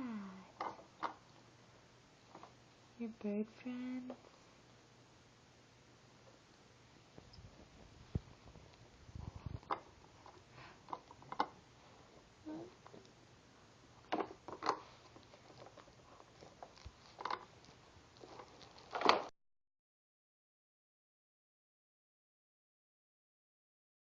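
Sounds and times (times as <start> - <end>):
pet playing with toys: 14.0 - 19.3.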